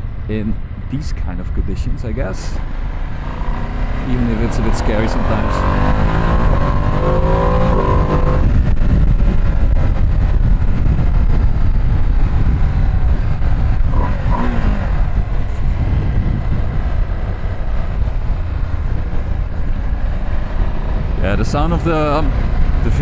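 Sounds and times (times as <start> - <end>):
riding noise rumble: 0.0 - 13.9
motorcycle engine: 2.6 - 22.8.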